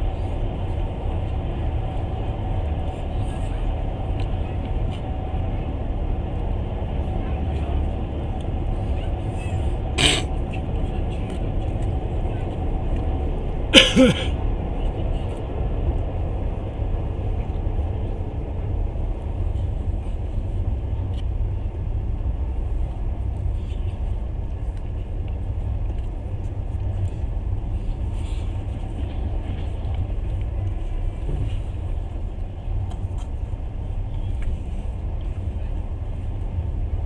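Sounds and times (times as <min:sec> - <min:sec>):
train rumbling on rails: 0:00.0 - 0:37.0.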